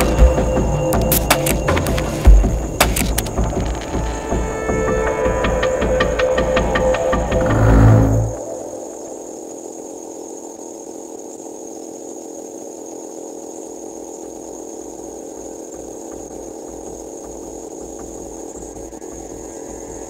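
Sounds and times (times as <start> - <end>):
low pulsing: 0.0 - 9.7
motor humming with whine: 0.0 - 20.0.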